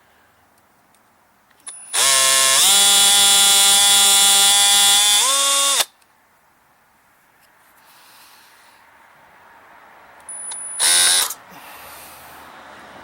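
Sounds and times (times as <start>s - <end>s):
electric drill motor whining: 1.9s - 5.9s, 10.8s - 11.4s.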